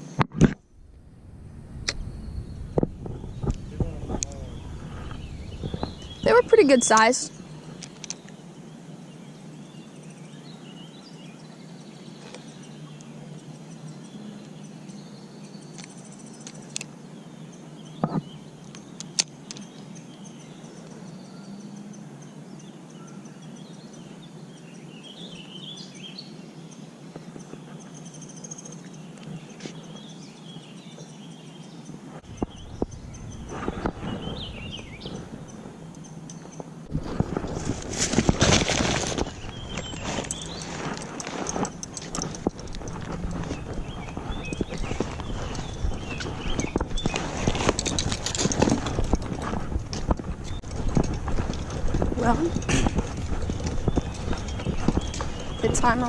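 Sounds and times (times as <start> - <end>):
low rumbling noise: 0.0 - 7.9, 32.2 - 56.0
birds chirping: 0.0 - 56.0
steady background hiss: 0.0 - 56.0.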